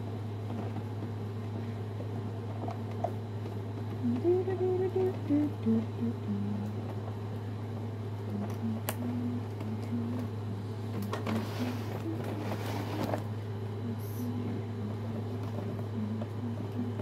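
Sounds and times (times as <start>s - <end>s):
steady low hum: 0.0s - 17.0s
plastic and cardboard rustling: 10.9s - 13.3s.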